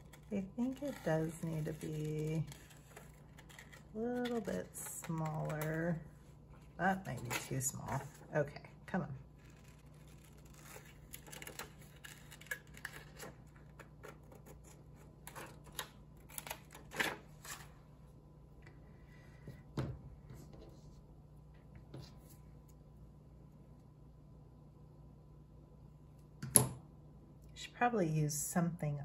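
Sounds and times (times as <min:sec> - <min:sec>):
paper being cut and rustled: 0:00.0 - 0:05.9, 0:09.4 - 0:17.7.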